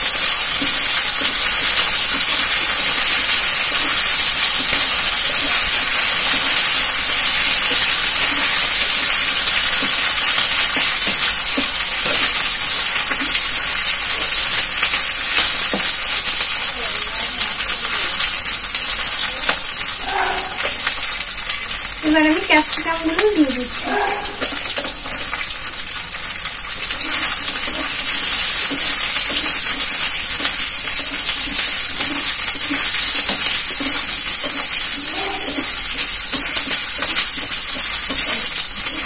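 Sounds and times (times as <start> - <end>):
onions sizzling in hot oil: 0.0 - 39.0.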